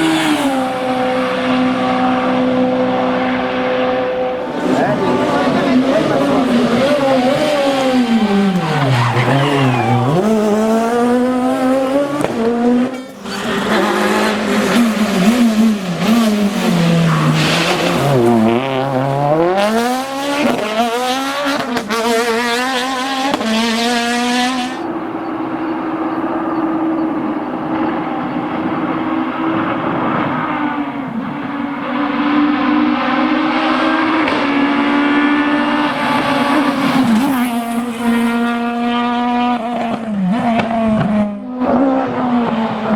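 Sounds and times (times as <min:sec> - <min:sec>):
rally car engine revving hard: 0:00.0 - 0:42.9.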